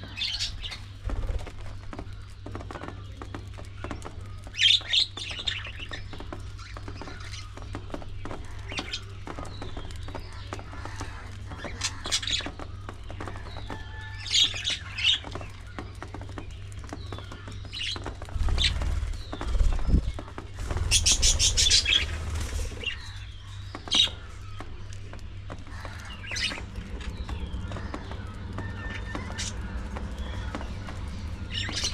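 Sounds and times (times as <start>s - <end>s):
budgerigars chirping and squawking: 0.0s - 2.7s, 3.3s - 15.8s, 17.1s - 24.6s, 25.7s - 31.9s
low rumble: 18.3s - 31.9s.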